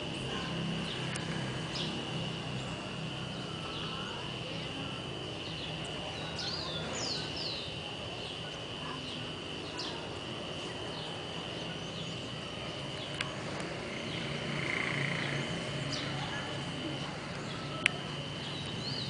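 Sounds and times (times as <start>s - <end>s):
steady high-pitched whine: 0.0s - 19.0s
birds chirping: 0.2s - 19.0s.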